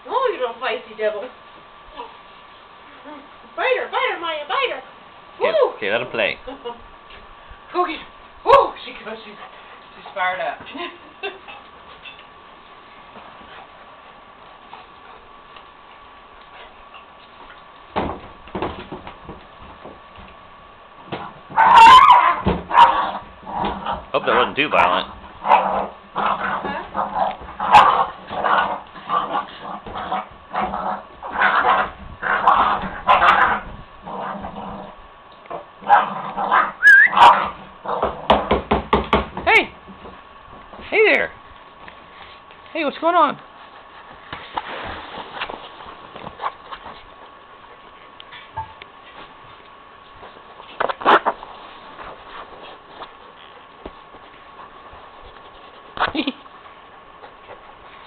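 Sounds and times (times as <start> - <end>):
dogs growling: 21.1 - 38.4
dogs barking: 21.5 - 28.8, 31.3 - 33.7, 35.8 - 38.0
puppies scuffling: 39.3 - 58.0.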